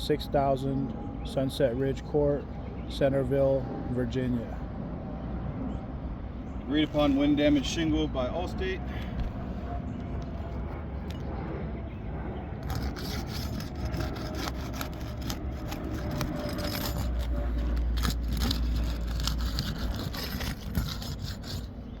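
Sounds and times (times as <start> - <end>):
steady low rumble: 0.0 - 22.0
shingles scraping and rubbing: 12.6 - 21.8.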